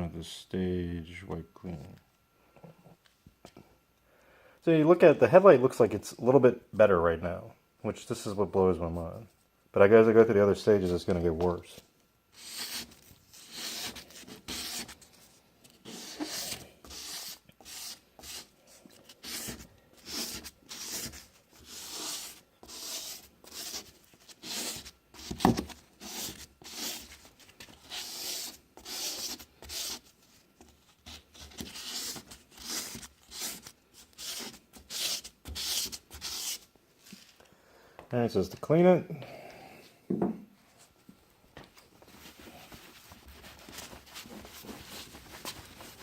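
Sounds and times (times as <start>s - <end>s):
abrasive pad rasping on plastic: 12.3s - 36.6s.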